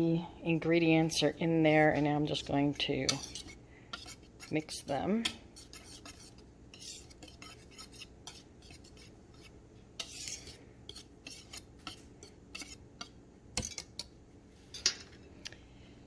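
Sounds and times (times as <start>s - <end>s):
utensil scraping a mixing bowl: 2.0s - 14.1s.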